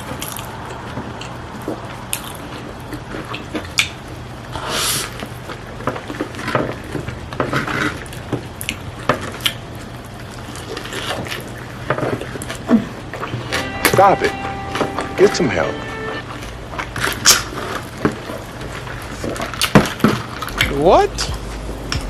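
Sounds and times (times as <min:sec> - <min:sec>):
chewing and slurping food: 0:00.1 - 0:13.3
steady low hum: 0:20.4 - 0:22.0.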